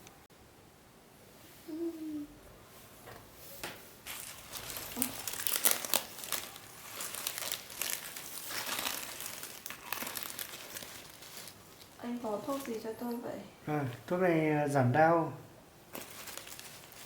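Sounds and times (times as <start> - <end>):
packaging crinkling and rustling: 4.0 - 13.2, 15.9 - 17.0.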